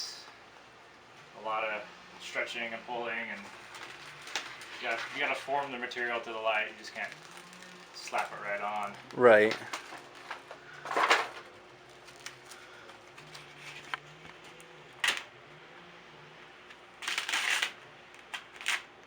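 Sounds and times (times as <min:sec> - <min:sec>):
rustling handling noises: 0:00.3 - 0:15.3.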